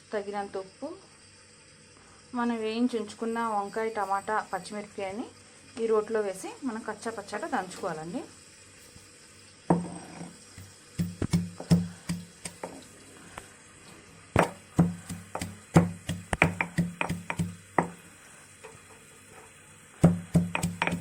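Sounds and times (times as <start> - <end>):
pestle pounding in stone mortar: 9.7 - 12.8, 14.4 - 18.0, 20.0 - 21.0.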